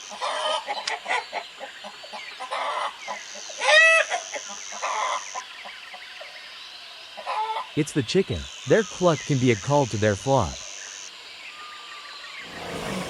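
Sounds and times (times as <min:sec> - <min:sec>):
chicken clucking: 0:00.0 - 0:05.4, 0:07.2 - 0:07.7.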